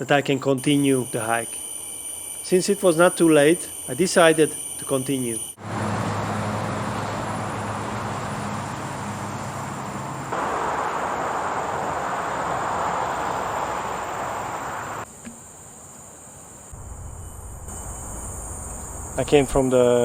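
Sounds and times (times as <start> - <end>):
high insect drone: 0.0 - 20.0
even rushing noise: 10.3 - 15.0
low hum: 16.7 - 19.6.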